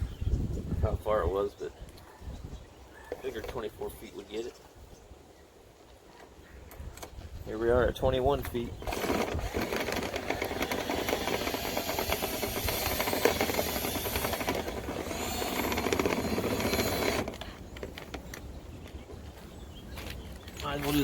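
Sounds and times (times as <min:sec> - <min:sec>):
brush scraping and rattling in duct: 0:08.6 - 0:18.4.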